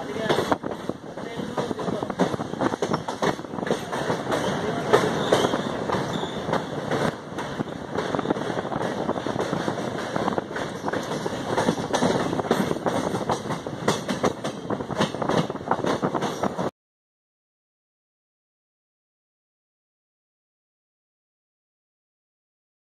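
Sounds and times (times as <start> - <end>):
train wheels clattering over rails: 0.0 - 16.7.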